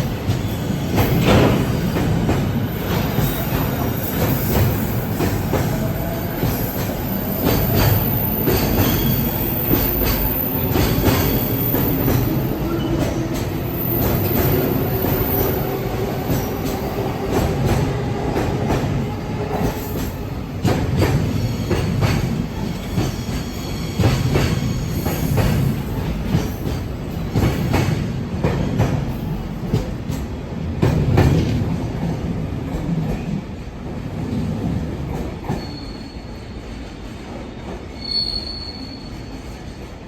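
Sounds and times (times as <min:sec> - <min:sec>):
freight train rolling past: 0:00.0 - 0:40.0
faint wheel squeal: 0:35.5 - 0:36.4, 0:37.9 - 0:39.4.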